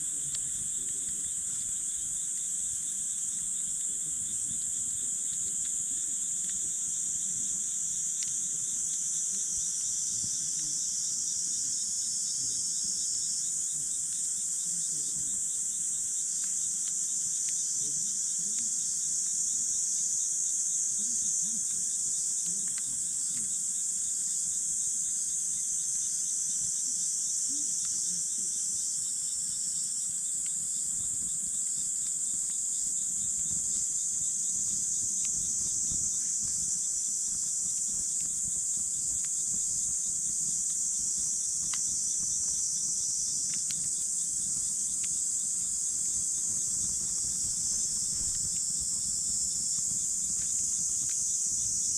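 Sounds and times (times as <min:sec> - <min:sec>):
campfire snaps: 0:00.0 - 0:10.7, 0:15.7 - 0:19.9, 0:21.6 - 0:24.3, 0:29.6 - 0:51.5
insects chirring: 0:00.0 - 0:51.9.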